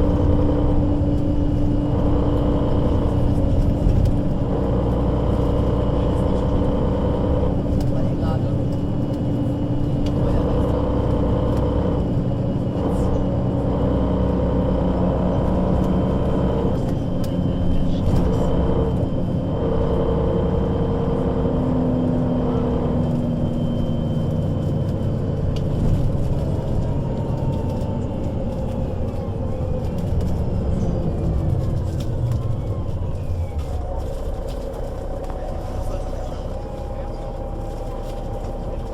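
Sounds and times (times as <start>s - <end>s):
bus engine and gearbox rumble and whine: 0.0s - 38.9s.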